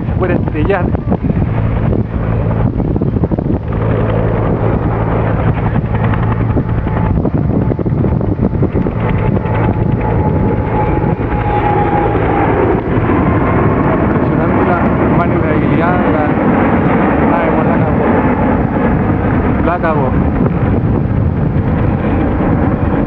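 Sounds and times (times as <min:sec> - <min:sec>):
faint steady whine: 0:00.0 - 0:23.0
jet engines roaring in flight: 0:00.0 - 0:23.0.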